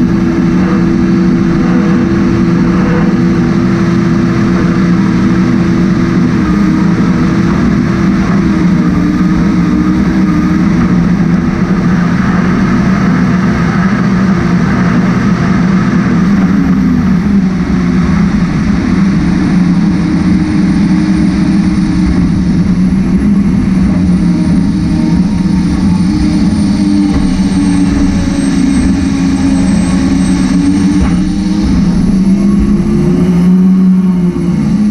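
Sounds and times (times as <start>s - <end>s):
high whine: 0.0s - 34.9s
jet boat engine running: 0.0s - 34.9s.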